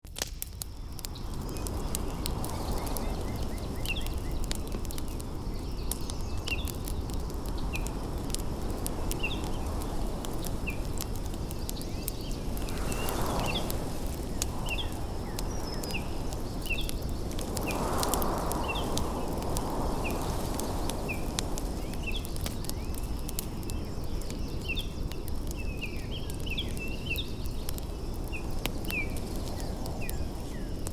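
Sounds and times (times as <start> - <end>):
low rushing: 7.9 - 22.6.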